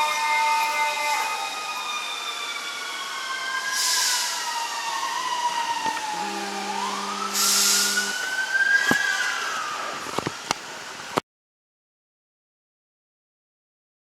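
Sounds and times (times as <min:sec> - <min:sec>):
fire truck siren wailing: 0:00.0 - 0:10.2
horn blast: 0:05.8 - 0:08.3.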